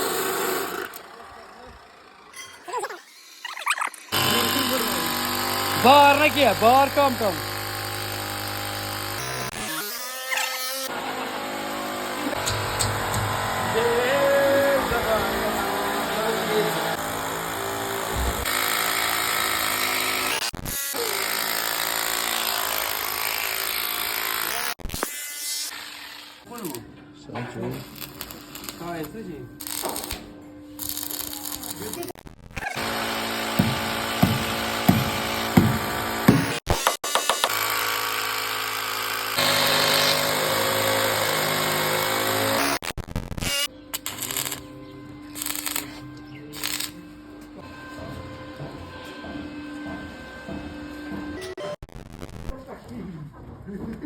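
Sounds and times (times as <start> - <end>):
power tool motor running: 0.0 - 2.4, 4.0 - 24.8, 32.7 - 42.8
sharp knocks: 33.6 - 37.6.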